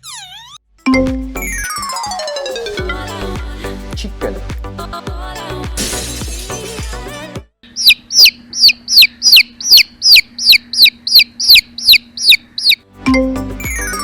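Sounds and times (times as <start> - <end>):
background music: 0.8 - 7.5, 12.8 - 14.0
chick peeping: 7.7 - 12.8.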